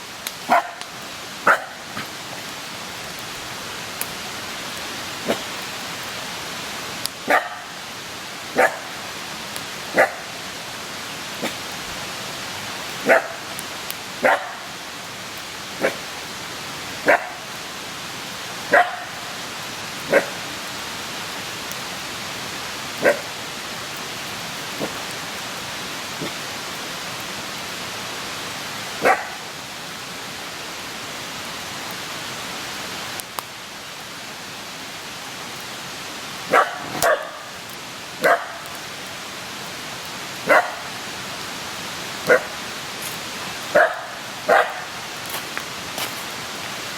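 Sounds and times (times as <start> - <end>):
campfire hissing: 0.0 - 46.9
dog barking: 0.5 - 0.9, 1.5 - 1.9, 7.3 - 7.8, 8.6 - 8.9, 9.9 - 10.3, 13.0 - 13.5, 14.2 - 14.7, 15.8 - 16.0, 17.0 - 17.4, 18.7 - 19.2, 20.1 - 20.4, 23.0 - 23.3, 29.0 - 29.4, 36.5 - 37.6, 38.2 - 38.7, 40.4 - 41.0, 42.3 - 42.6, 43.7 - 45.0.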